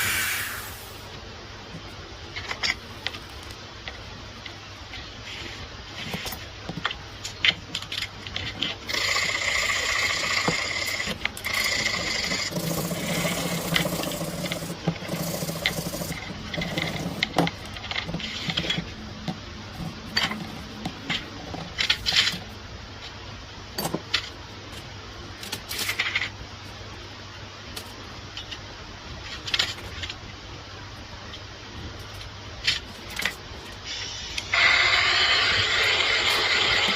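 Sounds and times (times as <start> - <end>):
scraping and rubbing on metal: 8.0 - 19.0.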